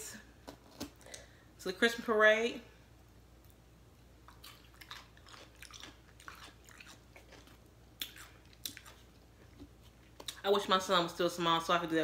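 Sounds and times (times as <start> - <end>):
chewing crunchy salad: 4.2 - 10.5.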